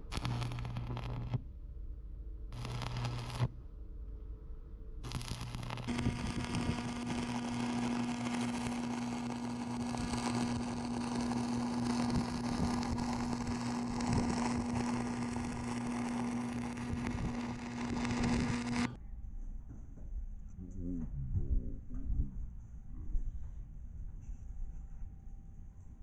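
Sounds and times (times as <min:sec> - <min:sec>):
machine humming: 0:00.0 - 0:01.4, 0:02.6 - 0:03.6, 0:05.0 - 0:19.0.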